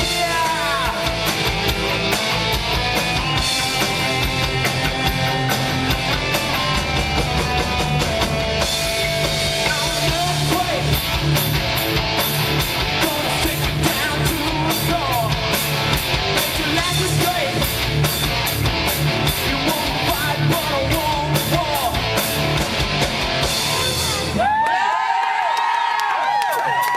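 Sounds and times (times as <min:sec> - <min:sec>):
vocals: 0:00.0 - 0:01.5, 0:09.2 - 0:11.4, 0:12.6 - 0:18.1, 0:19.1 - 0:22.3
rock band playing live: 0:00.0 - 0:24.6
crowd cheering and whistling: 0:24.0 - 0:26.9.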